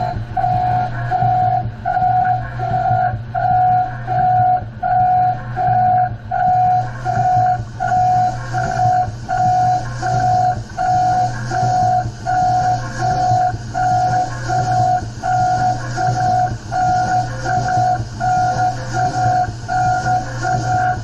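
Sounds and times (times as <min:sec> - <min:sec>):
electronic beeping: 0:00.0 - 0:21.0
low machine hum: 0:00.0 - 0:21.0.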